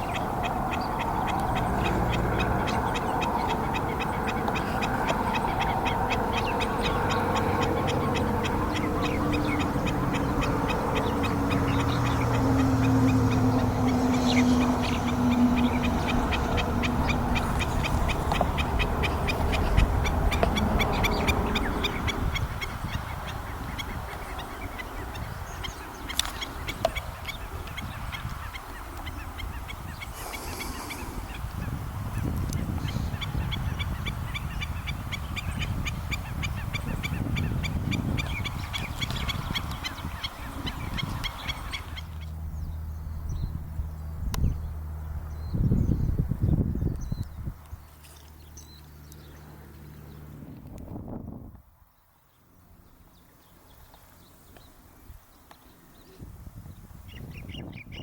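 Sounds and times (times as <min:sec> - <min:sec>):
waterbirds yapping calls: 0:00.0 - 0:50.4.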